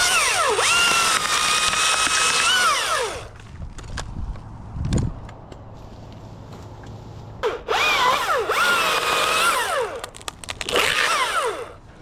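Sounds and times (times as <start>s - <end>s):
chainsaw revving: 0.0s - 3.3s, 7.5s - 10.0s, 10.6s - 11.8s.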